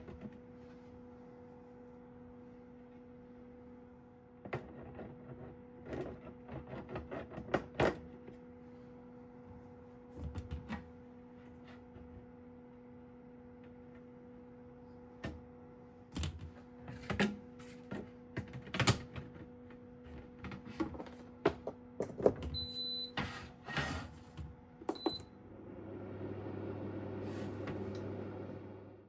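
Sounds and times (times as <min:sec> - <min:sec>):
fan whirring: 0:20.4 - 0:29.0.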